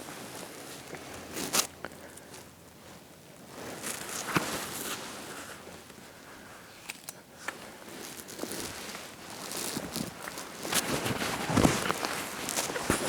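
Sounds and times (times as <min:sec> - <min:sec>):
clothing and gear rustling: 0:02.4 - 0:06.6, 0:07.4 - 0:13.0.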